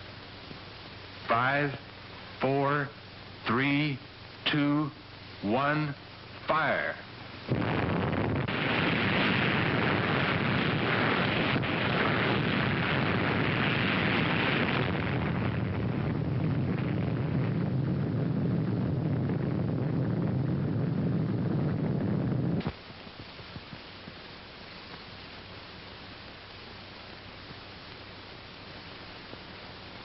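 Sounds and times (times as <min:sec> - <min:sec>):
explosion roar: 0:07.5 - 0:22.7.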